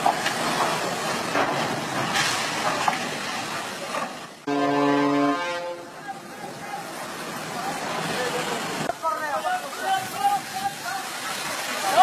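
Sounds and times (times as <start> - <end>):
rushing water: 0.0 - 12.0
loud horn blast: 4.5 - 6.0.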